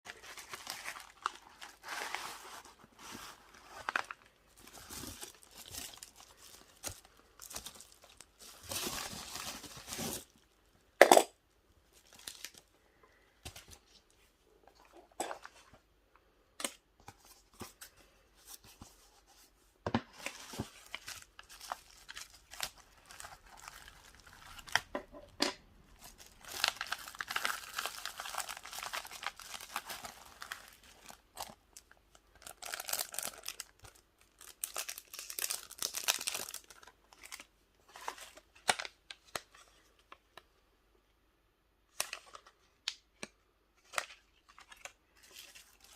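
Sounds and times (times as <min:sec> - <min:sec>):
packaging crinkling and tearing: 0:00.1 - 0:10.6, 0:11.9 - 0:12.7, 0:20.2 - 0:24.9, 0:25.8 - 0:39.7, 0:43.8 - 0:45.9.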